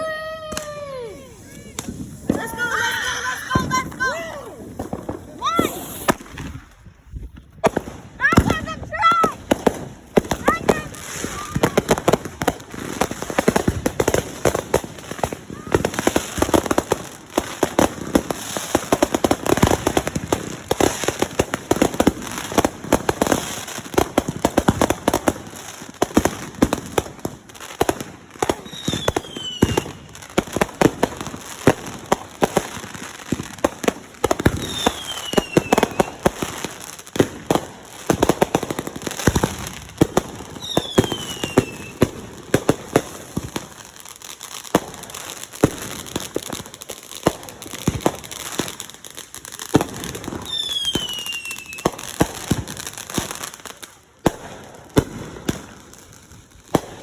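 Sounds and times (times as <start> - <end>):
fireworks crackling bangs: 0.0 - 57.0
falling firework whistles: 5.0 - 6.6, 28.6 - 30.2, 34.4 - 36.3, 40.6 - 42.1, 50.4 - 52.2.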